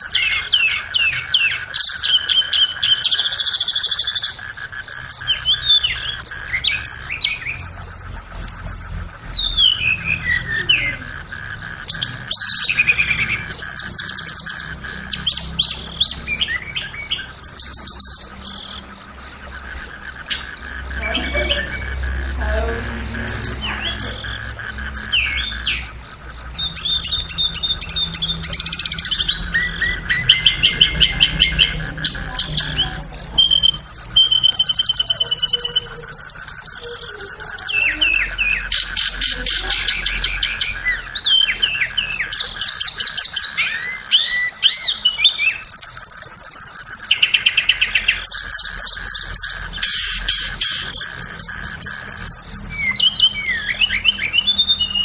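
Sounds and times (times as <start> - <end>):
bird song trills: 0.0 - 55.0.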